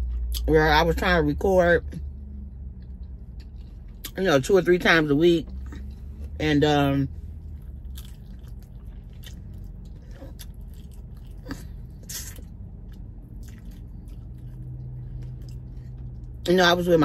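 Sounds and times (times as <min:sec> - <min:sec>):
person chewing: 0:00.0 - 0:00.5, 0:02.7 - 0:04.2, 0:05.4 - 0:06.4, 0:07.4 - 0:16.5.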